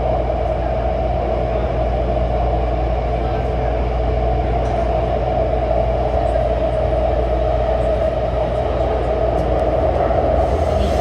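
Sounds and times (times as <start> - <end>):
train rumble: 0.0 - 11.0
mid-pitched hum: 7.0 - 11.0.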